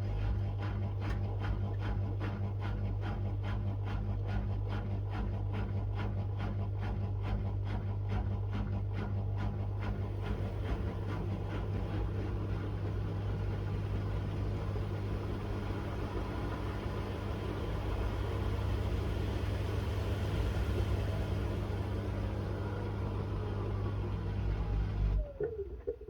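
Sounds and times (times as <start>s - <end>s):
washing machine motor hum: 0.0s - 26.0s
washing machine drum noise: 9.8s - 26.0s.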